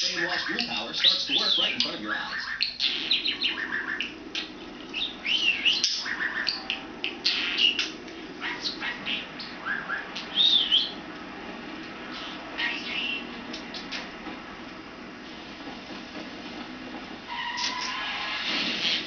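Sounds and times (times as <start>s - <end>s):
budgerigar chirping and warbling: 0.0s - 11.0s, 12.1s - 13.3s.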